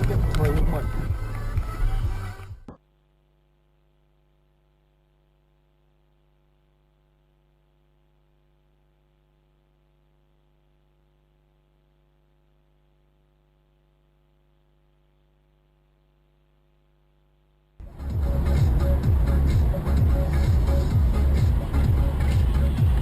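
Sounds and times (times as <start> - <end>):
faint electrical hum: 2.8 - 17.8.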